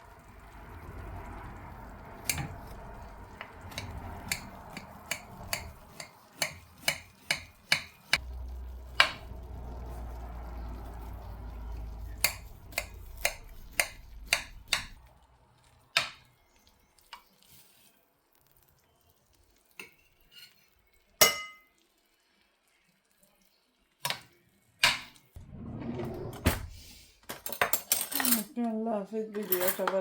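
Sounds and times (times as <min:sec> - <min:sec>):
metal utensils clinking on dishes: 0:27.3 - 0:30.0.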